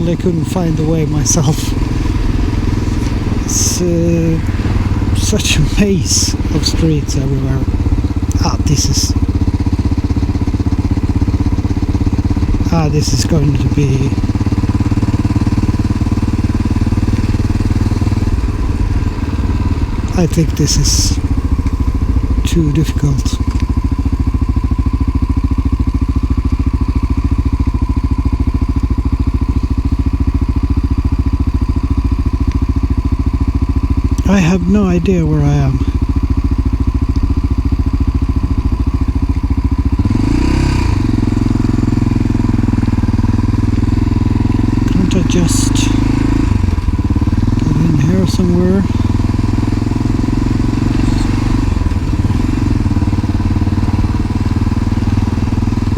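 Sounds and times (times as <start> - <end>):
motorcycle engine at low revs: 0.0 - 55.9.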